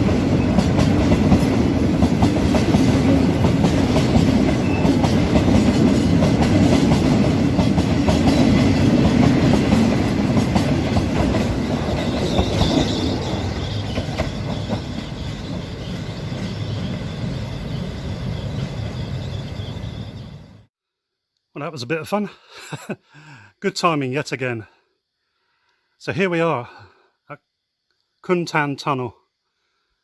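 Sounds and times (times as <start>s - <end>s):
train wheels clicking over rail joints: 0.0s - 12.9s.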